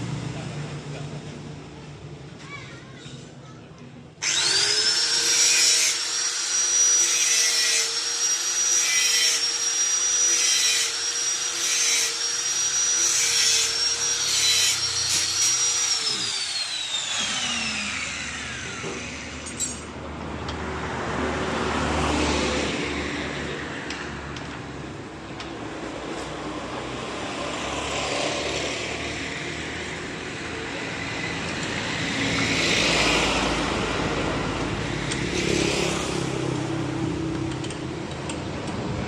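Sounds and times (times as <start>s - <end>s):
power tool motor whining: 4.2s - 19.8s.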